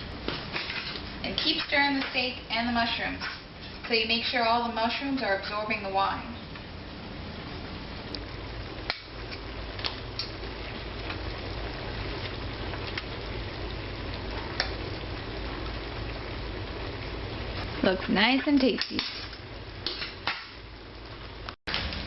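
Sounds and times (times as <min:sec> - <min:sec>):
food sizzling in a skillet: 0:07.4 - 0:22.0.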